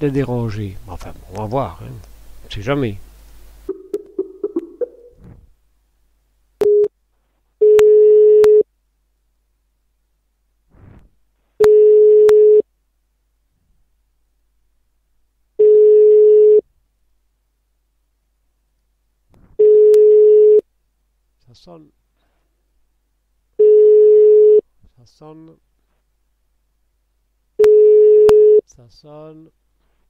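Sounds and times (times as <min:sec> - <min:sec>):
telephone ringback tone: 0:07.6 - 0:08.6, 0:11.6 - 0:12.6, 0:15.6 - 0:16.6, 0:19.6 - 0:20.6, 0:23.6 - 0:24.6, 0:27.6 - 0:28.6.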